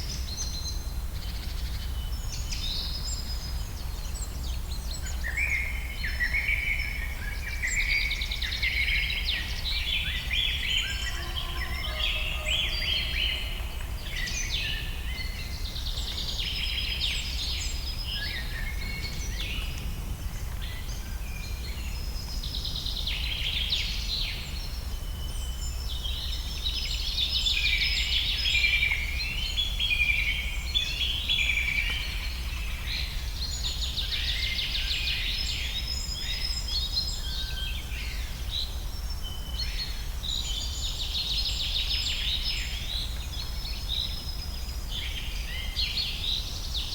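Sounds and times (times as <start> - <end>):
birds chirping and trilling: 9.9 - 24.4
low rumble: 18.4 - 22.3.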